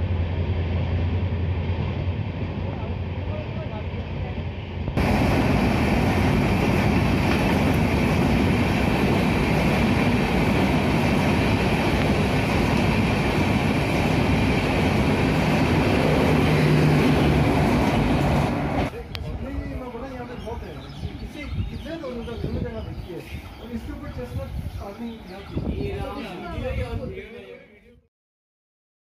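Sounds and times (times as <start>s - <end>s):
train wheels rolling on track: 0.0s - 18.9s.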